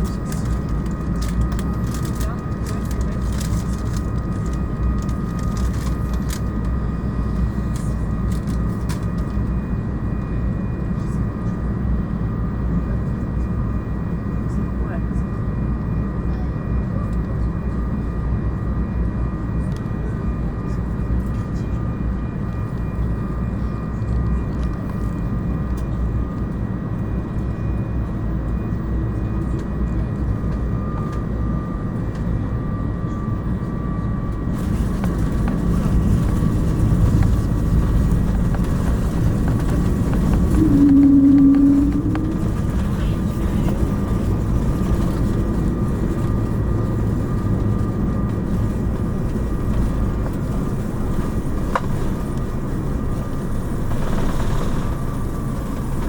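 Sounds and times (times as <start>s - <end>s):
aircraft cabin engine rumble: 0.0s - 56.0s
faint steady whines: 0.0s - 56.0s
brief louder hum: 40.3s - 43.9s.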